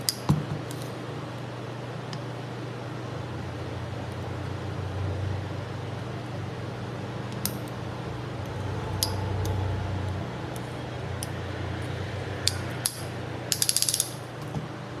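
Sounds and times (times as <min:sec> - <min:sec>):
metallic tool clicks: 0:00.0 - 0:00.9, 0:12.4 - 0:14.3
steady low hum: 0:00.0 - 0:15.0
ratchet clicking: 0:08.9 - 0:09.6, 0:12.4 - 0:14.3.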